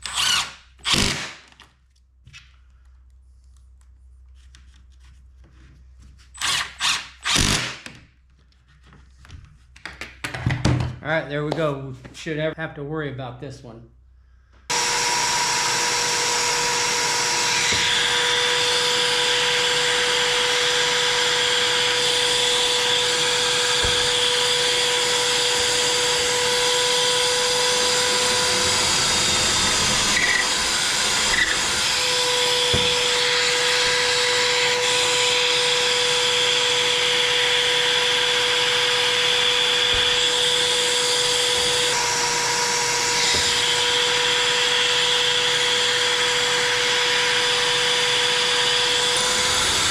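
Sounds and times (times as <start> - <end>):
power tool whining: 0.0 - 1.4, 6.4 - 7.8, 14.7 - 49.9.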